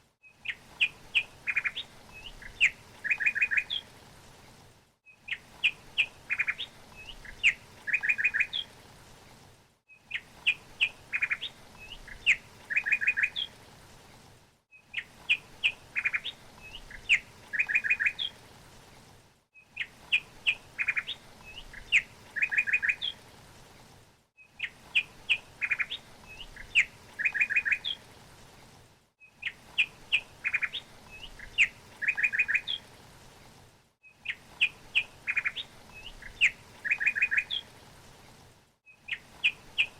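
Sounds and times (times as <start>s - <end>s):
songbird chirping and trilling: 0.4s - 3.9s, 5.1s - 8.7s, 9.9s - 13.5s, 14.8s - 18.4s, 19.7s - 23.2s, 24.4s - 28.0s, 29.2s - 32.9s, 34.1s - 37.7s, 38.9s - 39.9s.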